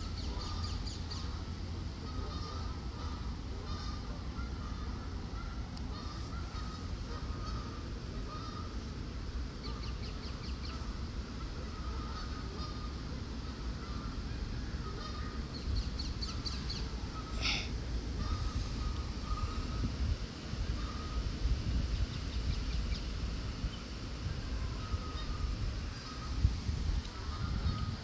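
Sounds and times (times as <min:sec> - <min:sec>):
steady low rumble: 0:00.0 - 0:28.0
short bird calls: 0:11.7 - 0:19.9.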